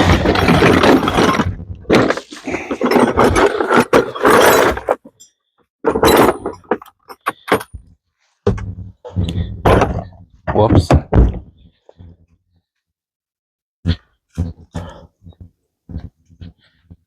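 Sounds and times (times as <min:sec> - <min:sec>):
metal tools clattering: 0:00.0 - 0:05.3, 0:05.9 - 0:07.8.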